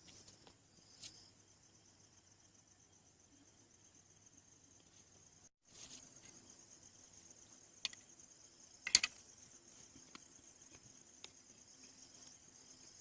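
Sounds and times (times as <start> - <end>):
insect chirping: 0.0 - 13.0
sharp clicks: 8.8 - 9.2.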